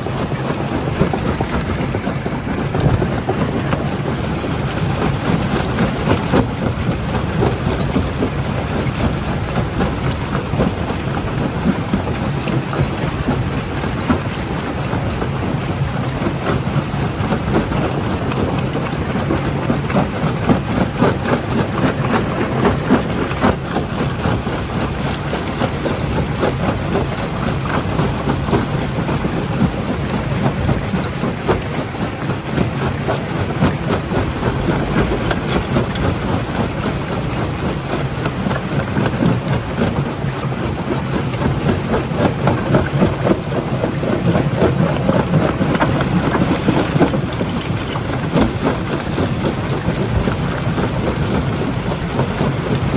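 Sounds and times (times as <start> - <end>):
rock crushing clatter: 1.0 - 15.4, 19.5 - 52.9
crusher machine hum: 32.4 - 38.3.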